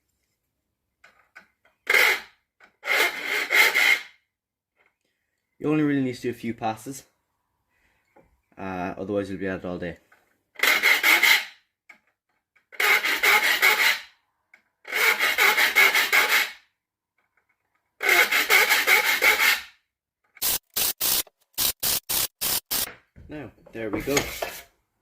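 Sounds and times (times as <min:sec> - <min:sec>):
file rasping on saw teeth: 0:01.8 - 0:04.2, 0:10.6 - 0:11.6, 0:12.7 - 0:14.1, 0:14.9 - 0:16.6, 0:18.0 - 0:19.7.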